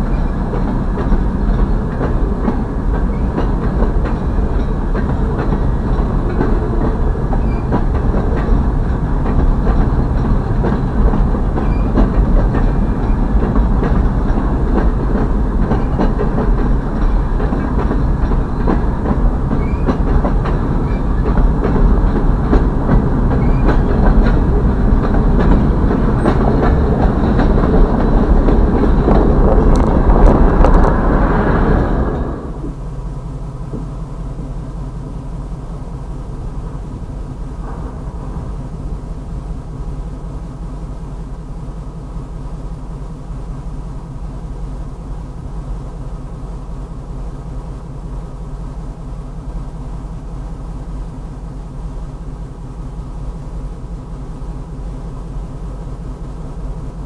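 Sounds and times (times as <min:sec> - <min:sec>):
wheels clacking over rail joints: 0:00.0 - 0:32.9
freight train rumbling past: 0:00.0 - 0:57.0.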